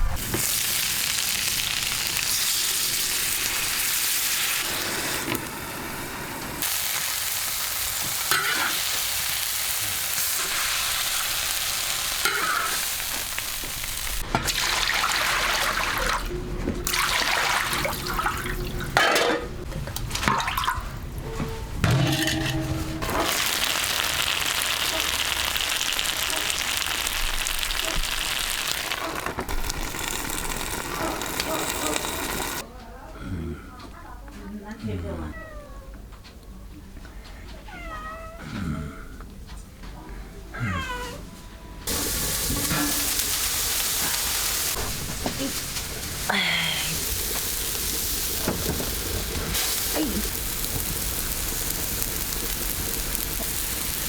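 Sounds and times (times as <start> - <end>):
food sizzling in a pan: 0.2 - 16.2, 22.0 - 32.6, 41.9 - 54.0.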